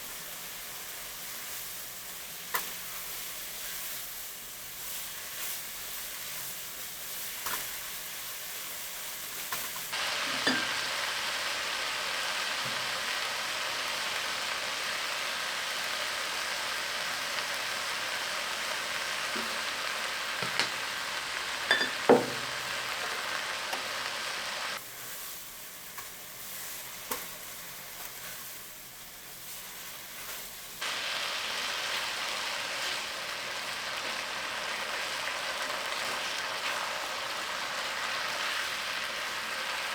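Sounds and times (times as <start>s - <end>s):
food sizzling in oil: 0.0s - 39.9s.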